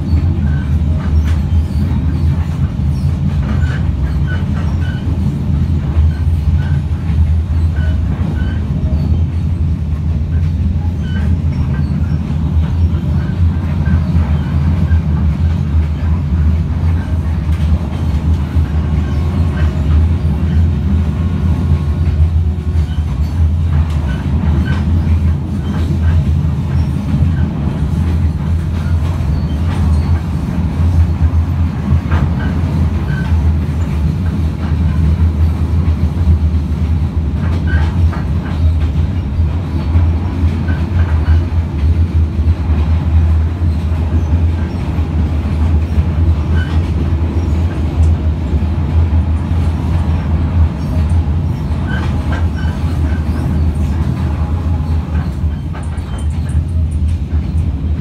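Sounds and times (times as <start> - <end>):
train wheels rumbling: 0.0 - 58.0.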